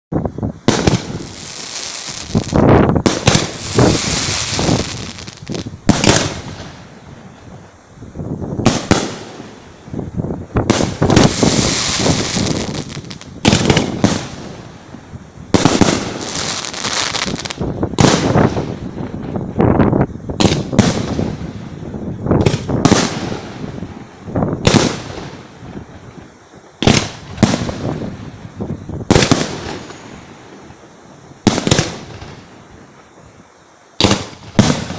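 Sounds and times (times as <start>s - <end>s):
fireworks crackling: 0.2s - 34.9s
hiss of firework shells: 0.6s - 19.5s, 20.2s - 34.9s
firework shells bursting: 10.7s - 14.6s, 26.8s - 28.1s.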